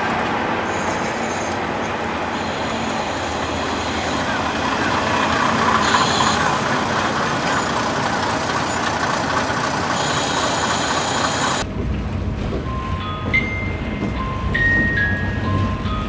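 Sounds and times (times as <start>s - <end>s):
diesel train running: 0.0s - 16.0s
bell-like musical notes: 12.6s - 16.0s.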